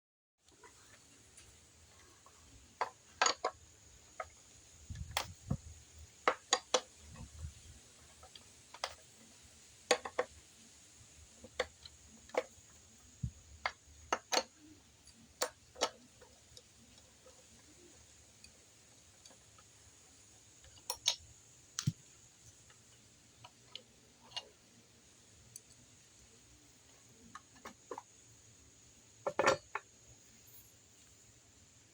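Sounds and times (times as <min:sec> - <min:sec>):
metal tool clicks and taps: 0:20.6 - 0:22.1.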